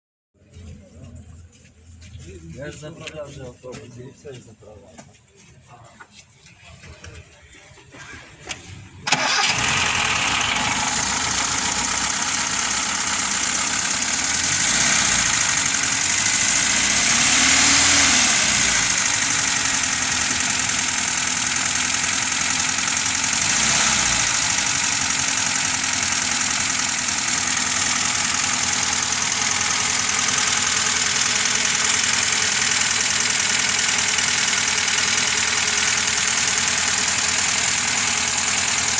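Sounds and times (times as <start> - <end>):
car engine starting and revving: 8.4 - 38.9.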